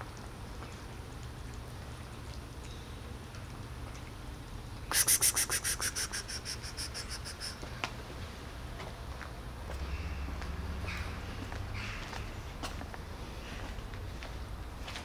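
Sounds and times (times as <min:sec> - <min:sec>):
bird trilling: 0:05.0 - 0:07.6.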